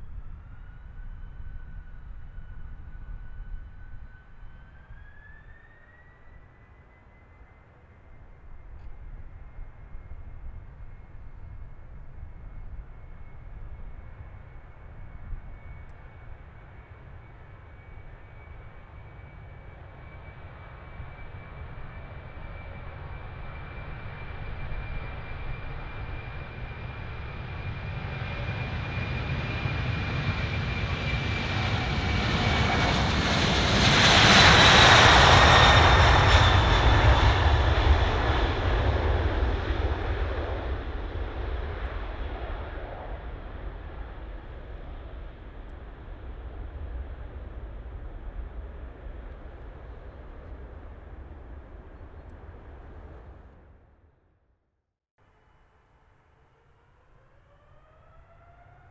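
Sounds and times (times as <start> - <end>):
jet engines passing by: 0.0 - 53.8, 55.2 - 58.9.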